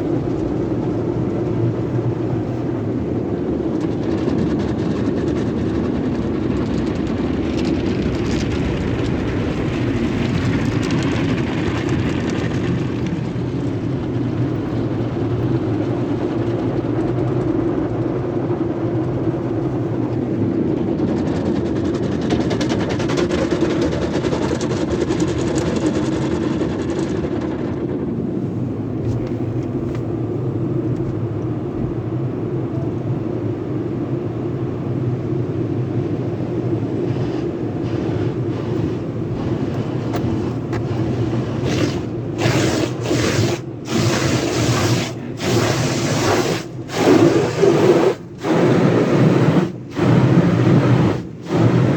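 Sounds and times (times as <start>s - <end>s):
car wash motor hum: 0.0s - 51.9s
water spraying hiss: 37.0s - 51.9s.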